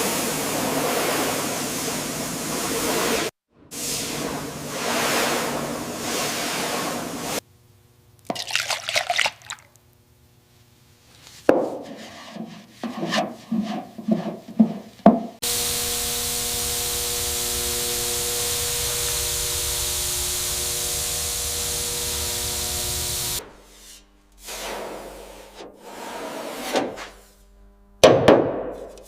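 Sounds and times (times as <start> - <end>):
workshop tool hissing and humming: 0.0 - 7.4, 14.3 - 27.6
knocks and scrapes of parts: 11.3 - 15.4.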